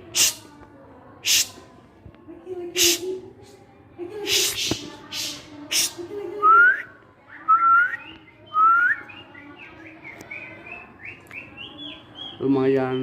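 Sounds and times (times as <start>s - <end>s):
bird high chirps: 7.4s - 13.0s.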